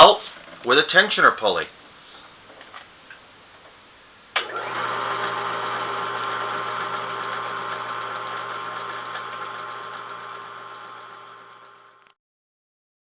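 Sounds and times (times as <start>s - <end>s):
electric motor whining and humming: 4.4s - 12.2s.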